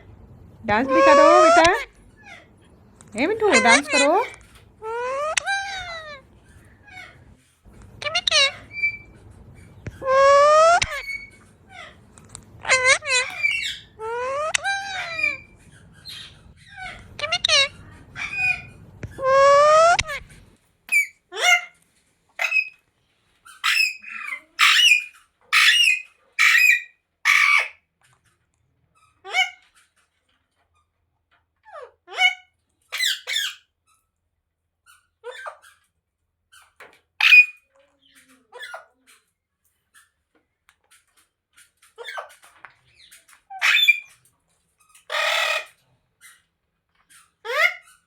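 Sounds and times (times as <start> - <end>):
parrot squawking: 0.7 - 2.6, 3.2 - 7.3, 7.9 - 21.8, 22.4 - 22.8, 23.4 - 27.8, 29.0 - 29.9, 31.7 - 33.7, 34.9 - 35.9, 36.6 - 39.2, 41.8 - 44.2, 44.8 - 46.5, 47.1 - 48.0.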